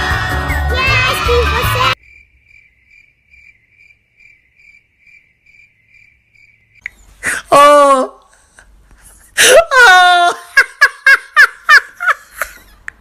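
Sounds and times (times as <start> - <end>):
cricket chirping: 2.0 - 7.1.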